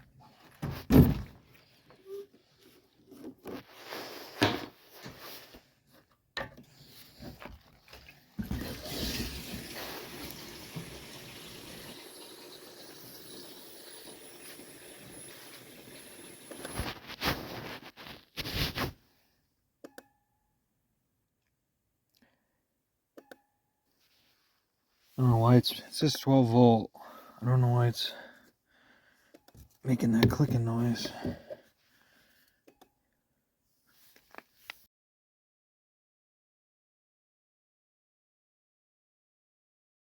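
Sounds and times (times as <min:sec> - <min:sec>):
fuel pouring into a tank: 0:07.5 - 0:16.6.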